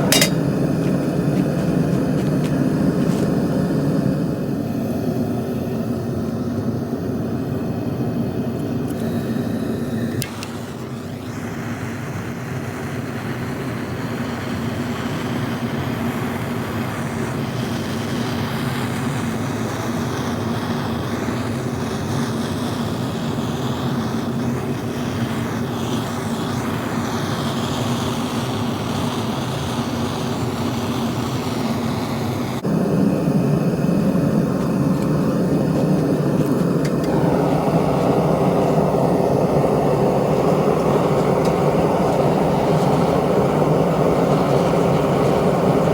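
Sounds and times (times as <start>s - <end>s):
furnace burner rushing: 0.0s - 45.9s
low hum: 32.7s - 45.9s.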